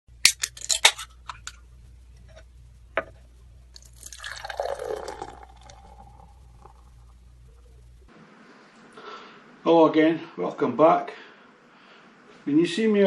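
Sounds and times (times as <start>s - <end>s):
liquid pouring into a glass: 3.8s - 6.9s.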